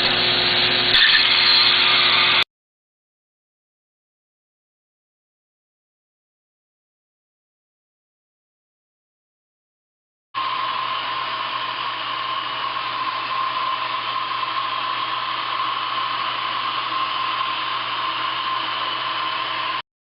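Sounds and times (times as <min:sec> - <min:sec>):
laser welding equipment hissing: 0:00.0 - 0:02.4.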